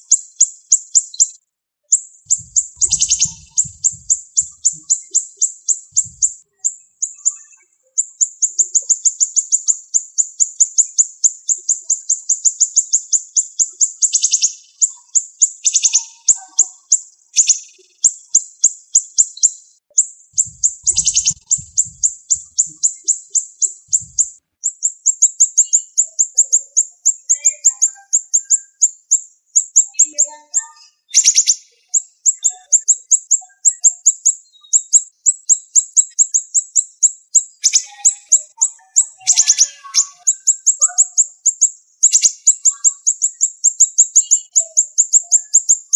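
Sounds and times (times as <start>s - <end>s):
bird singing high sharp notes: 2.3s - 8.4s, 20.4s - 28.8s, 29.6s - 45.6s.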